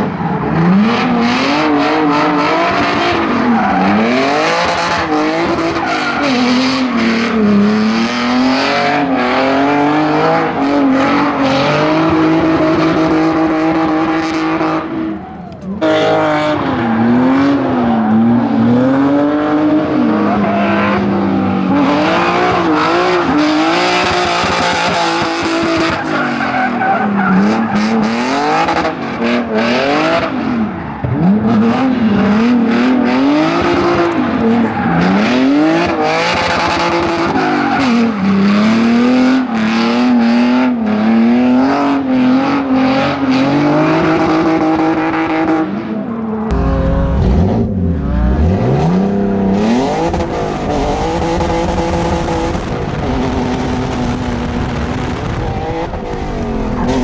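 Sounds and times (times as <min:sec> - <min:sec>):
tire squeal: 0:00.0 - 0:07.7, 0:08.6 - 0:40.9
car engine revving: 0:00.0 - 0:57.0.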